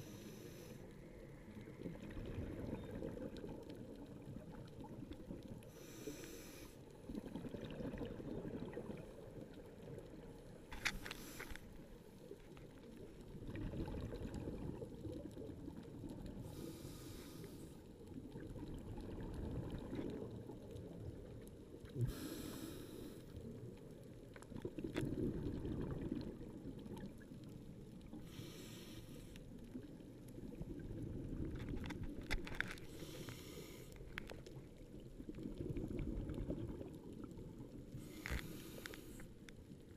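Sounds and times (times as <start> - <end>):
bubbly regulator exhale: 24.6 - 27.0.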